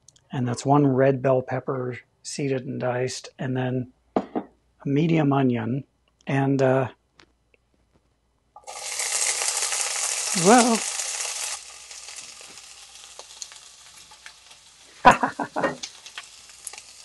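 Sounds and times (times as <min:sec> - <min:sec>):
pepper sizzling in hot oil: 0:08.6 - 0:17.0.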